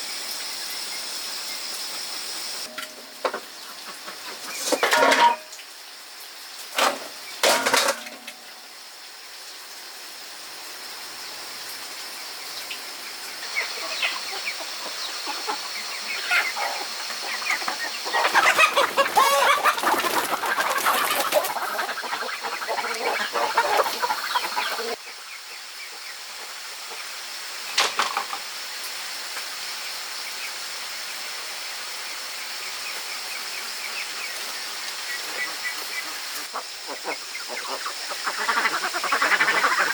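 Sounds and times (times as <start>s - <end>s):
steady high hiss: 0.0s - 39.9s
chickens clucking: 2.5s - 5.6s, 6.8s - 8.6s, 13.3s - 27.1s, 33.9s - 39.9s.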